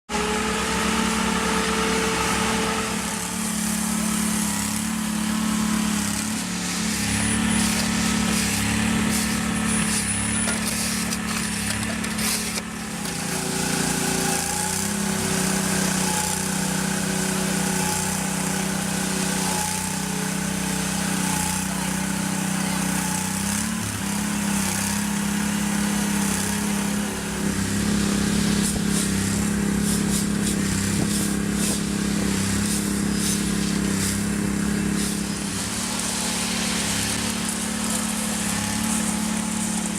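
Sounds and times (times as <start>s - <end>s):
heavy machine engine running: 0.1s - 39.9s.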